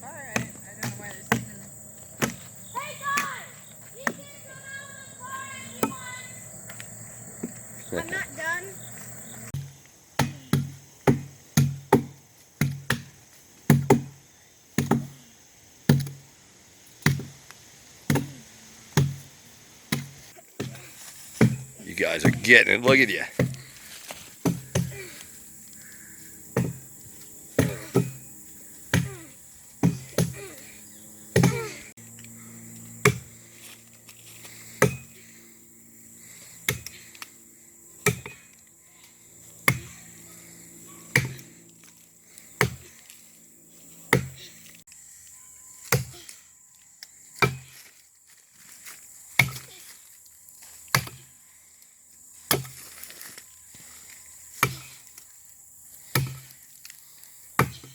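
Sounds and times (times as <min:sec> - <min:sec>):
axe chopping into log: 0:02.2 - 0:02.5, 0:09.6 - 0:14.2, 0:14.8 - 0:15.2, 0:15.9 - 0:16.2, 0:17.0 - 0:17.4, 0:18.1 - 0:18.4, 0:19.0 - 0:19.3, 0:19.9 - 0:20.8, 0:21.4 - 0:22.5, 0:23.4 - 0:23.6, 0:24.4 - 0:25.0, 0:26.6 - 0:26.9, 0:27.6 - 0:28.2, 0:28.9 - 0:29.2, 0:29.8 - 0:30.5, 0:31.4 - 0:31.7, 0:33.0 - 0:33.3, 0:34.8 - 0:35.1, 0:38.0 - 0:38.4, 0:39.6 - 0:40.0, 0:41.1 - 0:41.5, 0:42.6 - 0:42.9, 0:44.1 - 0:44.4, 0:45.9 - 0:46.2, 0:47.4 - 0:47.7, 0:49.4 - 0:49.7, 0:50.9 - 0:51.3, 0:52.5 - 0:52.8, 0:54.6 - 0:55.0, 0:56.1 - 0:56.5, 0:57.6 - 0:57.9
steady low hum: 0:19.1 - 0:45.4.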